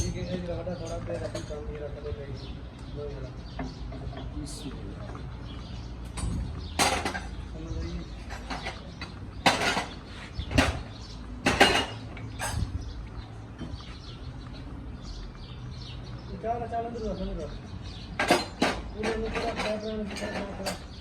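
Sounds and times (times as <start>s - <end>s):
metal tools clinking: 0.0s - 1.7s, 6.1s - 7.5s, 8.2s - 10.8s, 11.4s - 12.7s, 18.2s - 21.0s.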